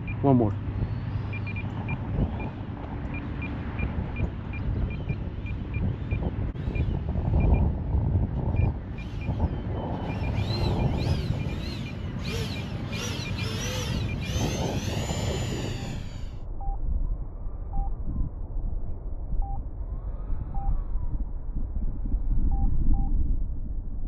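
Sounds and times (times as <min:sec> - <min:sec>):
wind rumble on microphone: 0:00.0 - 0:24.0
model plane motor whining: 0:09.0 - 0:16.4.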